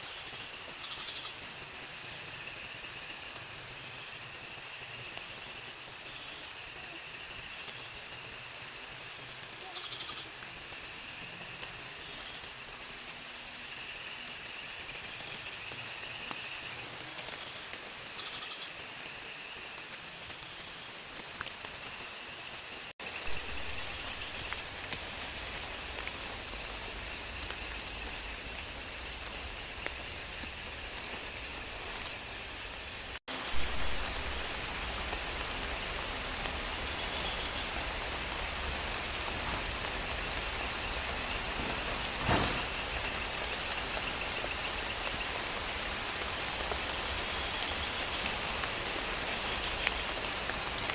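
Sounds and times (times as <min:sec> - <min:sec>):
steady rain falling: 0:00.0 - 0:50.9
raindrops ticking: 0:23.0 - 0:41.7.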